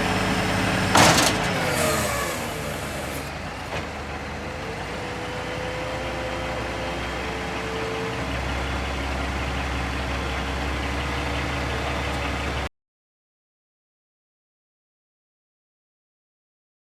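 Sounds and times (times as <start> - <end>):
diesel truck engine idling: 0.0 - 12.7.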